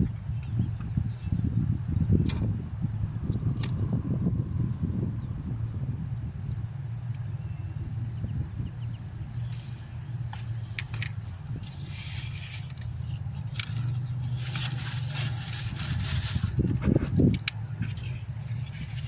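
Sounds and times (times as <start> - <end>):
low hum: 0.0 - 19.0
scraping and crackling: 9.4 - 19.0.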